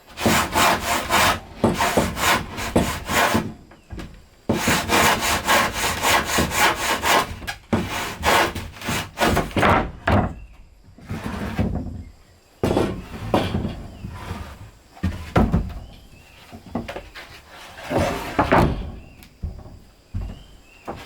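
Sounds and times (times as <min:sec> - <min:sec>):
hand saw cutting wood: 0:00.0 - 0:03.6, 0:04.5 - 0:09.7, 0:17.2 - 0:19.1.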